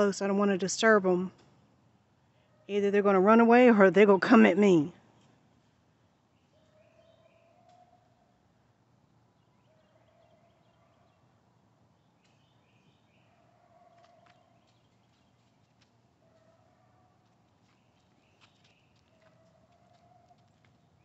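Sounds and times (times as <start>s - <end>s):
distant birds calling: 6.1s - 8.4s.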